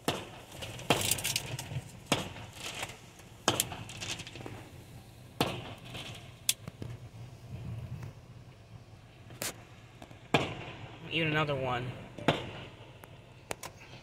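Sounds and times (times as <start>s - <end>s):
fireworks crackling pops: 0.0s - 8.2s, 9.2s - 11.0s, 12.2s - 13.9s
fireworks bangs with echo: 10.2s - 11.1s, 12.2s - 13.0s.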